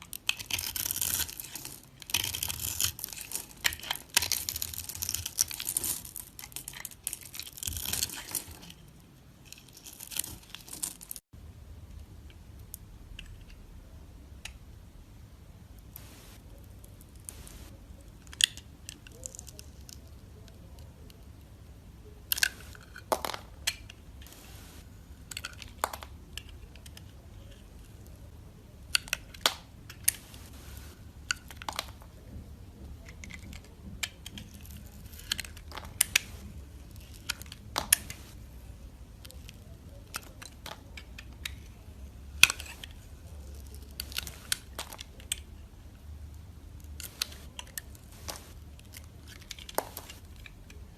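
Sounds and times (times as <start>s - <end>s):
dry soap cracking when cut: 0.0s - 8.5s.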